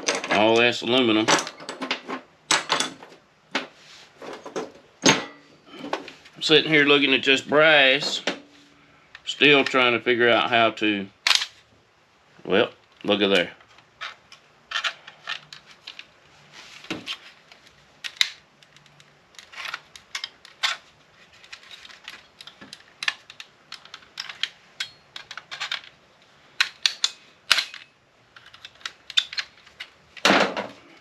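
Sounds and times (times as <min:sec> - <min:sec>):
hand tools clicking on metal parts: 0:21.4 - 0:26.0, 0:26.6 - 0:30.0.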